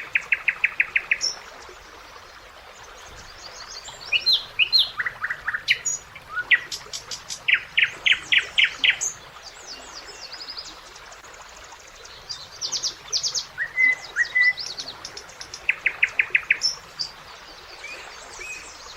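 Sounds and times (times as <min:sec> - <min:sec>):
faint steady hiss: 0:00.0 - 0:18.9
nightingale singing: 0:03.5 - 0:10.4, 0:12.2 - 0:17.2.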